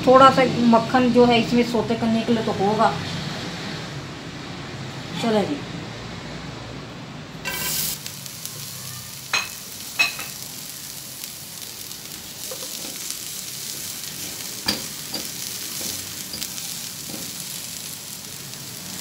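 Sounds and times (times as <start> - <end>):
vegetables sizzling in oil: 7.4 - 19.0
utensils knocking on pan: 9.3 - 10.4, 14.6 - 17.4.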